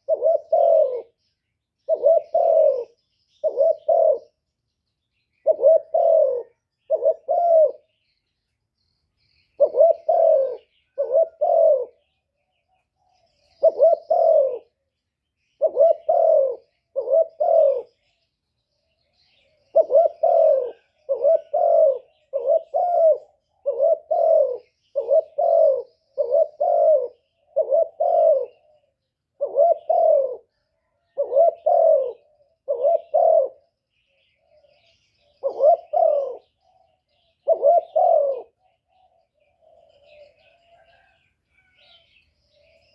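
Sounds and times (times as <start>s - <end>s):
dove cooing: 0.0s - 4.5s, 5.1s - 8.2s, 9.2s - 18.2s, 18.8s - 42.9s.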